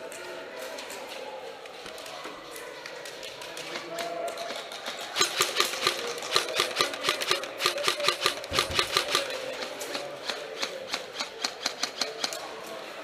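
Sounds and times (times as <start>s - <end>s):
airsoft gun shots: 5.2s - 9.4s.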